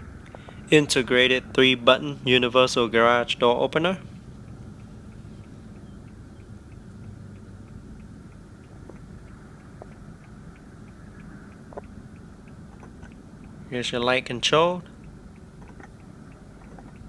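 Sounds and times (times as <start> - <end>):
car engine idling hum: 0.0 - 17.0
quick even ticking: 0.0 - 17.0
small clicks: 3.8 - 13.6, 14.5 - 17.0.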